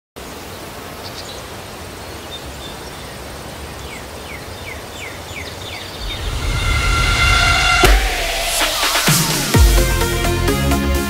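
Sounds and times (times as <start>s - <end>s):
low rumble: 6.0s - 9.5s.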